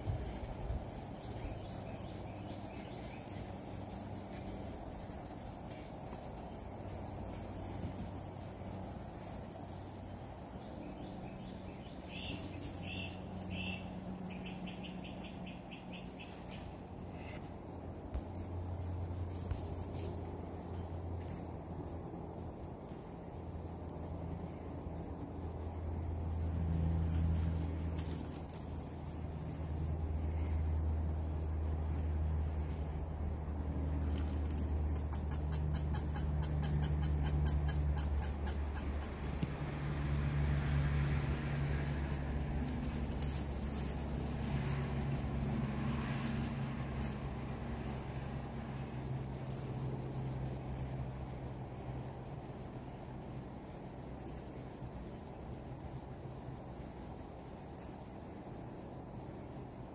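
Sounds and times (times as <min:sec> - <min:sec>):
birds chirping: 0:00.0 - 0:17.5, 0:34.2 - 0:39.5
songbird singing: 0:00.0 - 0:17.5, 0:18.2 - 0:18.7, 0:20.7 - 0:21.6, 0:26.8 - 0:28.0, 0:29.1 - 0:30.8, 0:31.8 - 0:32.8, 0:34.1 - 0:39.6, 0:42.0 - 0:42.4, 0:44.5 - 0:45.0, 0:46.9 - 0:47.3, 0:50.5 - 0:51.0, 0:54.2 - 0:54.6, 0:57.7 - 0:58.1
low steady hum: 0:00.0 - 0:59.9
high bird chirps: 0:10.9 - 0:16.7.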